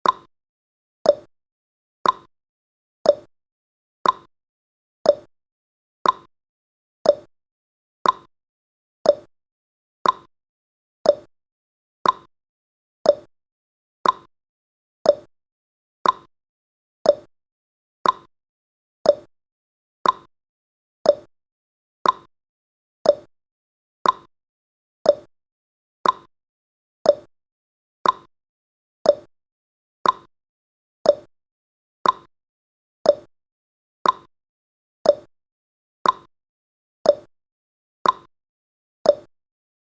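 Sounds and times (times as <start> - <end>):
timer clock tick-tock: 0.0 - 0.3, 1.0 - 1.3, 2.0 - 2.3, 3.0 - 3.3, 4.0 - 4.3, 5.0 - 5.3, 6.0 - 6.3, 7.0 - 7.3, 8.0 - 8.3, 9.0 - 9.3, 10.0 - 10.3, 11.0 - 11.3, 12.0 - 12.3, 13.0 - 13.3, 14.0 - 14.3, 15.0 - 15.3, 16.0 - 16.3, 17.0 - 17.3, 18.0 - 18.3, 19.0 - 19.3, 20.0 - 20.3, 21.0 - 21.3, 22.0 - 22.3, 23.0 - 23.3, 24.0 - 24.3, 25.0 - 25.3, 26.0 - 26.3, 27.0 - 27.4, 28.0 - 28.3, 29.0 - 29.3, 30.0 - 30.3, 31.0 - 31.4, 32.0 - 32.3, 33.0 - 33.4, 34.0 - 34.4, 35.0 - 35.4, 36.0 - 36.4, 37.0 - 37.4, 38.0 - 38.4, 39.0 - 39.4.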